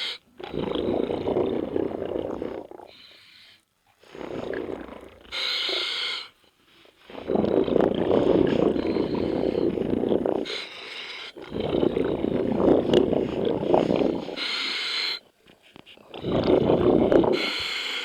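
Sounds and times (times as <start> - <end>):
bubbling exhale: 0.0 - 3.2, 4.0 - 15.2, 16.0 - 18.0
hissing regulator inhale: 2.9 - 15.2, 16.2 - 18.0.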